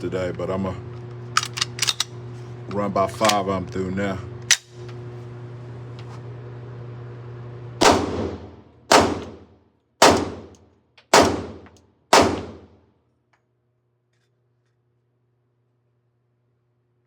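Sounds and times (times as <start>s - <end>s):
pistol shots with ringing tail: 7.8s - 9.4s, 10.0s - 10.5s, 11.1s - 12.7s.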